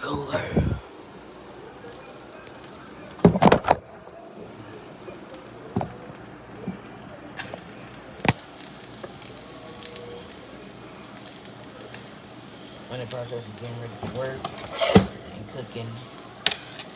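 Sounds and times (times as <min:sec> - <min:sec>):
faint steady noise: 0:00.0 - 0:16.9
plastic clicks and knocks: 0:03.2 - 0:03.8, 0:05.8 - 0:06.0.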